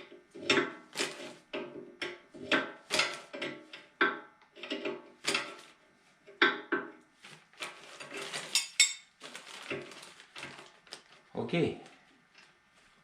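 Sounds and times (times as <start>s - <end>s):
rummaging noise: 7.2s - 13.0s.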